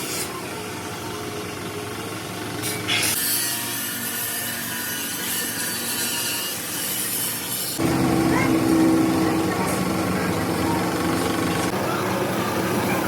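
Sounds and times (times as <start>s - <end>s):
machine hum: 7.8s - 12.8s.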